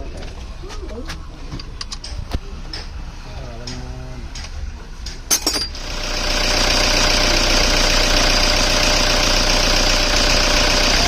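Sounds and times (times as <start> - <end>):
diesel engine idling: 5.6 - 11.0.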